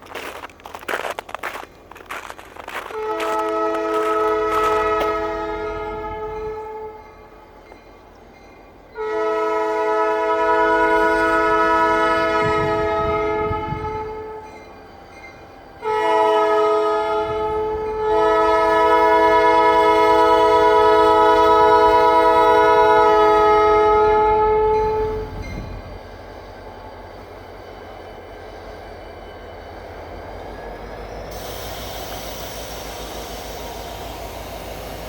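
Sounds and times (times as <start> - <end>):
low locomotive rumble: 0.0 - 35.0
locomotive air horn blasts: 2.7 - 7.4, 9.0 - 14.4, 15.8 - 25.4, 31.3 - 35.0.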